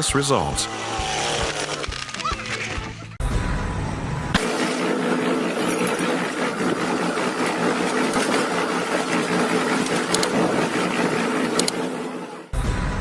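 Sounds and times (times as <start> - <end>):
machine running: 0.5 - 2.6, 3.2 - 13.0
sharp clicks: 9.1 - 12.0.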